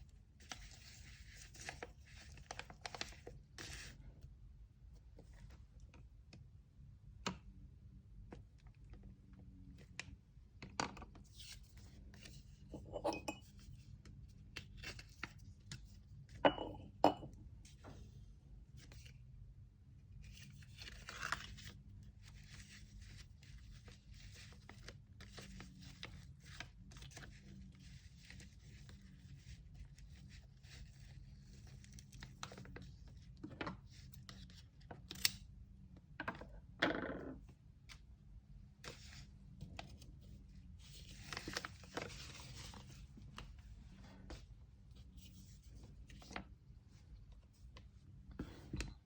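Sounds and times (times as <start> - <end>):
paper and tape rustling: 0.4 - 4.0, 38.8 - 43.6
low steady hum: 11.6 - 33.4.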